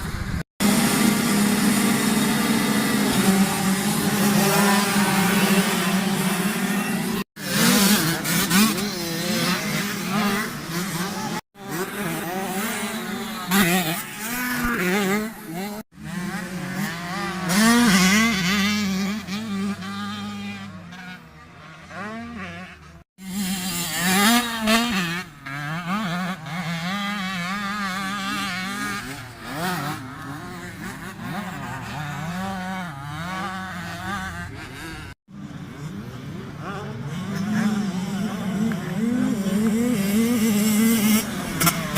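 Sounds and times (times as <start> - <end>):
motocross bike engine revving: 0.0 - 41.9.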